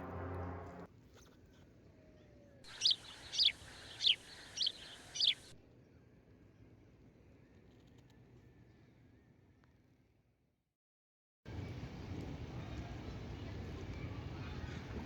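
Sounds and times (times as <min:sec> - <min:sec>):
bird chirping: 0:02.7 - 0:05.6.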